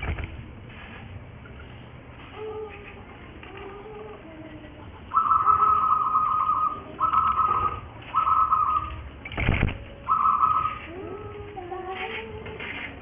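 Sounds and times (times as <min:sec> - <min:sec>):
doves cooing: 0:02.4 - 0:12.2.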